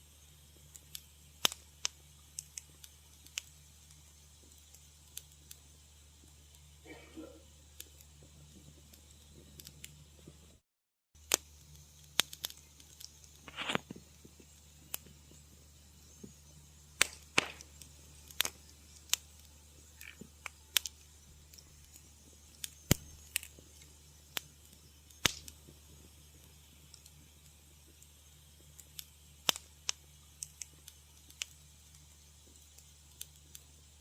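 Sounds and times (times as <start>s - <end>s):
faint low hum: 0.0s - 10.6s
wood fire crackling: 0.0s - 10.6s, 11.2s - 34.0s.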